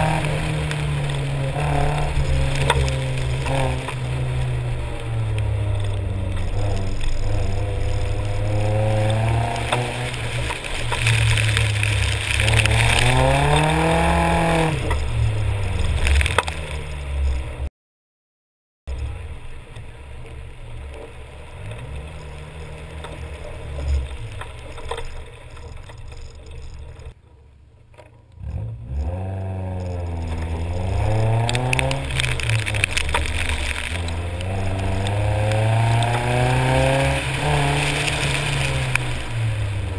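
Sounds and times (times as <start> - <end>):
tyres hissing on wet road: 0.0 - 16.8, 29.8 - 39.9
car engine revving: 0.0 - 17.6, 19.0 - 27.2, 28.1 - 39.9.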